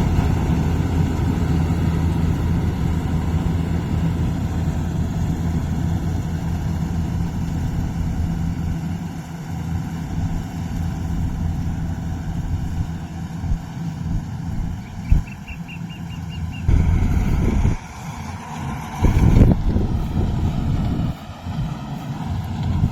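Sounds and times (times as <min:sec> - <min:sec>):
diesel engine humming: 0:00.0 - 0:22.9.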